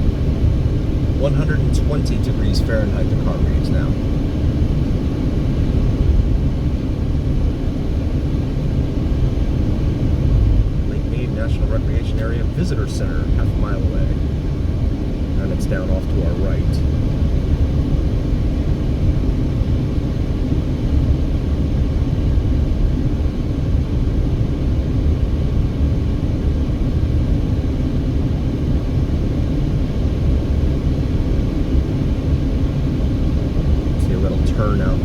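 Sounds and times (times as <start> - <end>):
car driving rumble: 1.0 - 4.6, 10.2 - 17.4, 33.7 - 35.0.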